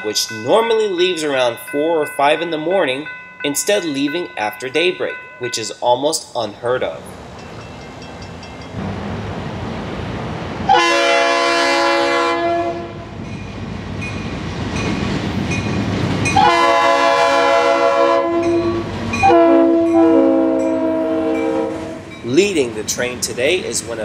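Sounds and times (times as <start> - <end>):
train rumble: 0.0 - 24.0
locomotive air horn blasts: 10.7 - 13.2, 16.4 - 22.1.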